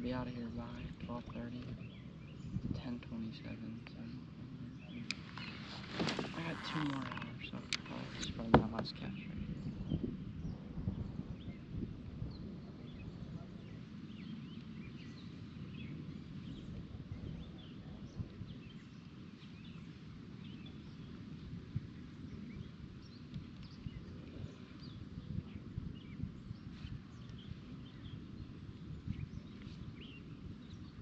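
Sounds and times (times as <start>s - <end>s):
birds chirping: 0.0s - 31.0s
low rumble of wind or water: 0.0s - 31.0s.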